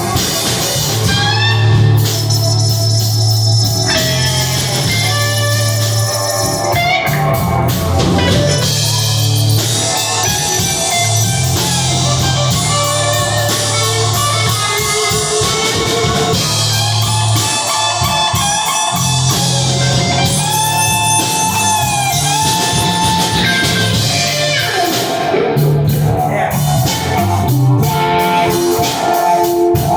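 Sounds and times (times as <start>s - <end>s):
drum kit playing: 0.0s - 29.9s
electric guitar: 0.0s - 29.9s
low bass drone: 25.6s - 28.3s.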